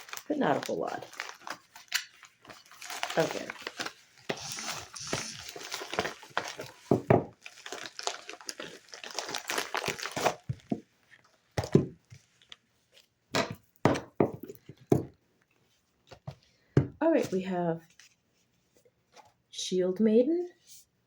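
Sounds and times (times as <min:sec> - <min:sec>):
packaging crinkling and rustling: 0:00.0 - 0:13.2.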